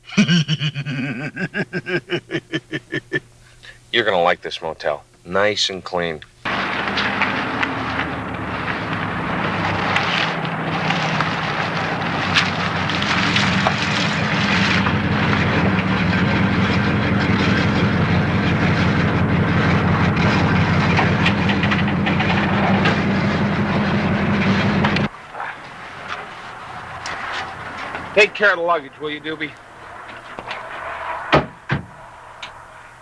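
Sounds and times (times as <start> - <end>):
loud rattling clatter from car: 6.5 - 25.1
car engine running: 6.5 - 30.7.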